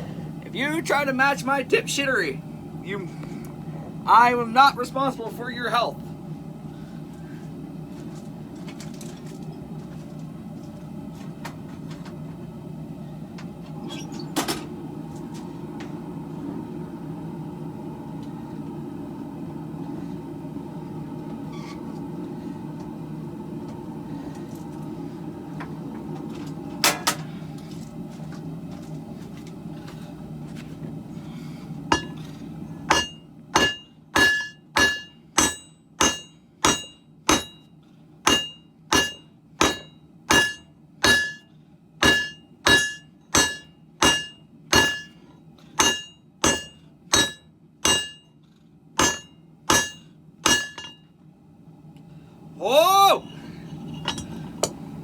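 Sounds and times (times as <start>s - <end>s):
steady low rumble: 0.0s - 45.3s
hammer ringing on anvil: 31.9s - 32.2s, 32.9s - 37.7s, 38.3s - 45.2s, 45.8s - 48.3s, 49.0s - 51.0s.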